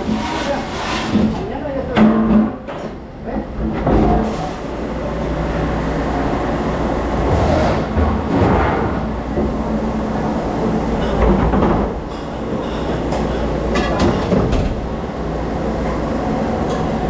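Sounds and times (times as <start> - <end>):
loud mechanical rumble: 2.9 - 17.0.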